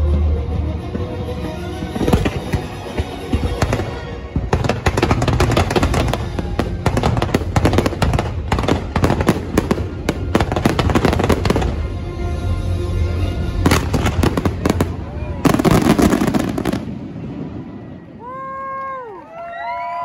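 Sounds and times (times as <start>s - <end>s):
music playing: 0.0s - 17.6s
fireworks bangs and crackling: 0.8s - 12.0s, 13.6s - 18.3s.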